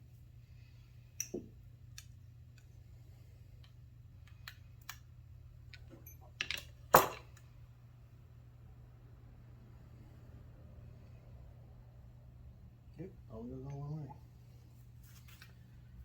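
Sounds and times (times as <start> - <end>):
metal parts and tools clinking: 5.7 - 7.5.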